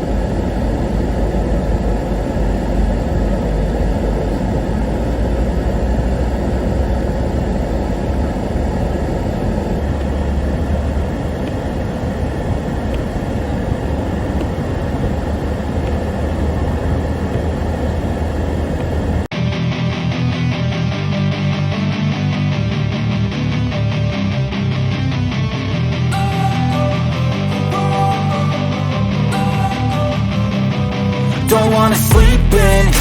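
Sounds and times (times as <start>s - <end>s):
car engine and road noise: 0.0s - 19.3s, 25.7s - 33.0s
guitar music: 19.3s - 33.0s.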